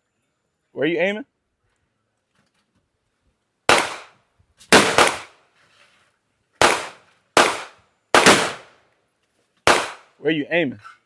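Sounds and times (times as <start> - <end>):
gunshots: 3.7 - 4.1, 4.7 - 5.3, 6.6 - 8.7, 9.7 - 10.0.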